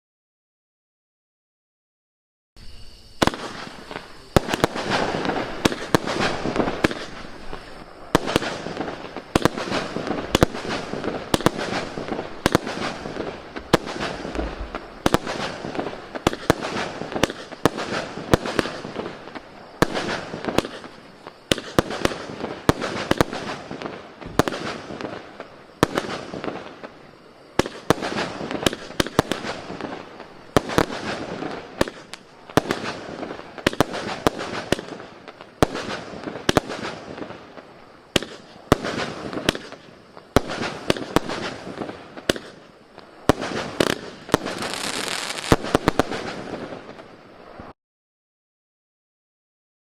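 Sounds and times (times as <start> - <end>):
cake firework sharp reports: 3.2 - 35.0.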